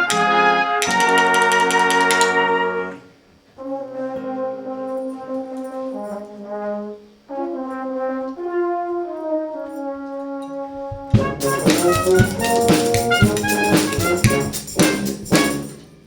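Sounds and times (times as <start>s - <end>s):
brass band playing chords: 0.0s - 9.7s, 10.8s - 15.9s.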